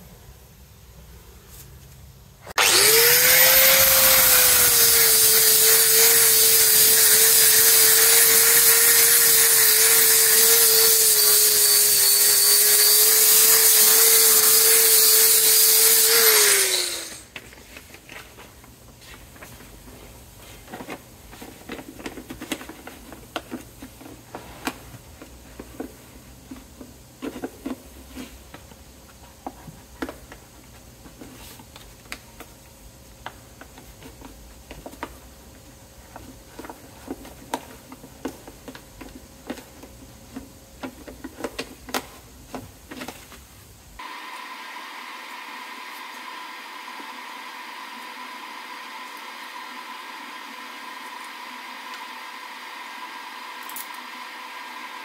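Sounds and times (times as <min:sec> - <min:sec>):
power grinder grinding metal: 0:02.6 - 0:17.3.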